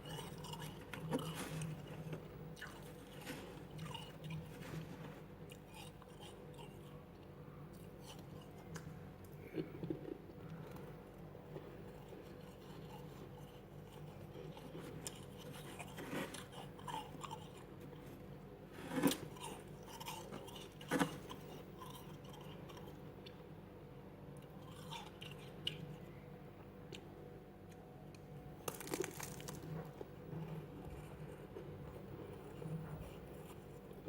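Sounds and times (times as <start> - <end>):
frost being crunched: 28.6 - 29.8.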